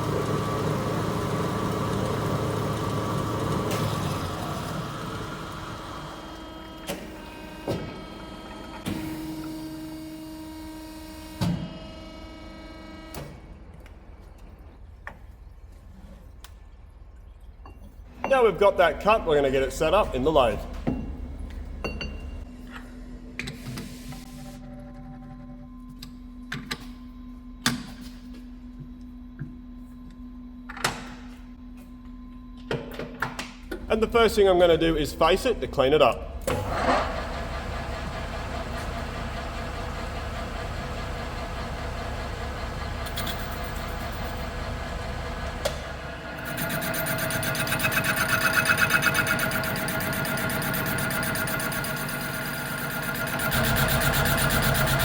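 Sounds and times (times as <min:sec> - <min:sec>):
metal-cutting saw motor hum: 0:36.3 - 0:55.0.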